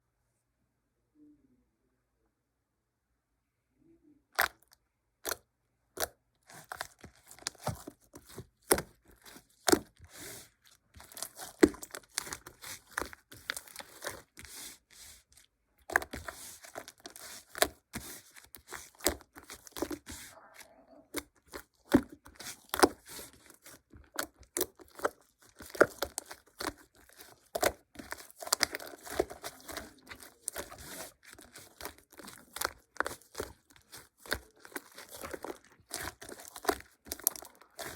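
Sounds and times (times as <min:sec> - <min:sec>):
material crinkling and tearing: 0:04.4 - 0:05.4, 0:06.0 - 0:20.4, 0:21.0 - 0:37.9.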